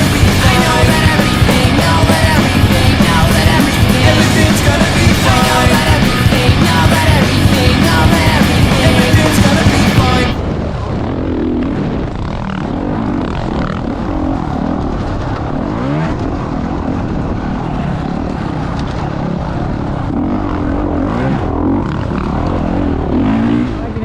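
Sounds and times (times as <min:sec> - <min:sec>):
motorcycle engines revving: 0:00.0 - 0:24.0.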